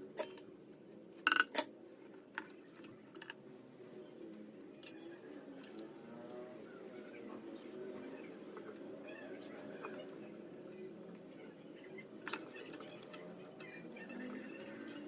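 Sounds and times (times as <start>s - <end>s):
metal tools clinking on workbench: 1.3s - 1.7s.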